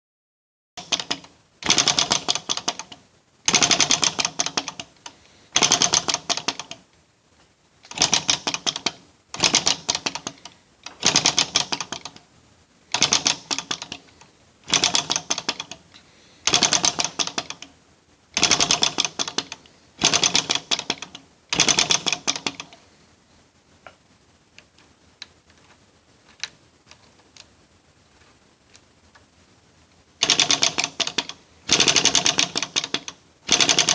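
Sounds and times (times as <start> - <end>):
model engine rapid ticking: 0.8 - 4.9, 5.5 - 6.8, 7.9 - 12.2, 12.9 - 14.1, 14.7 - 15.8, 16.4 - 17.7, 18.4 - 22.7, 30.2 - 33.9.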